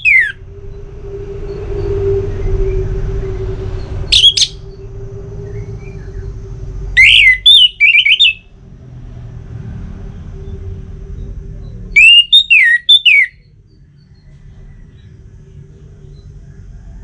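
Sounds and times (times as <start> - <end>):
thrush calling: 0.0 - 0.5, 3.6 - 8.5, 12.0 - 13.4
steady low hum: 0.0 - 12.5, 13.3 - 17.0.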